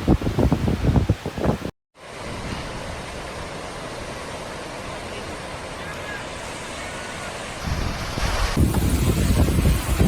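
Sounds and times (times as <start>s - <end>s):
wind buffeting microphone: 0.0s - 1.7s, 7.6s - 10.0s.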